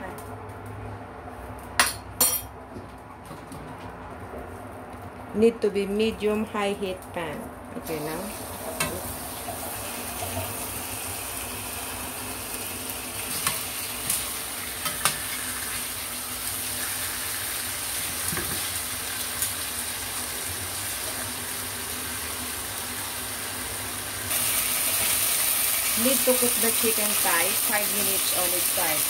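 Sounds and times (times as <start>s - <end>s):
chicken sizzling in oil: 8.3s - 29.0s.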